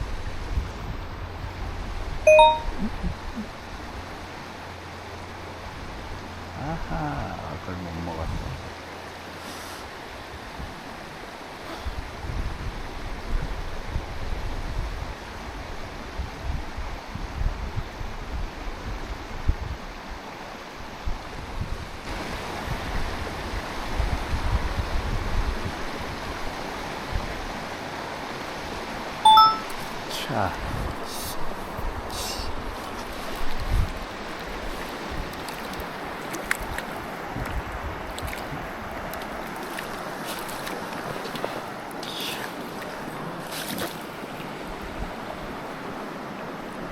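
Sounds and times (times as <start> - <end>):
wind rumbling on microphone: 0.0 - 2.2, 11.8 - 27.9, 30.6 - 41.9
stream water rushing: 0.0 - 16.2, 21.9 - 46.9
water rushing over rocks: 31.3 - 46.9.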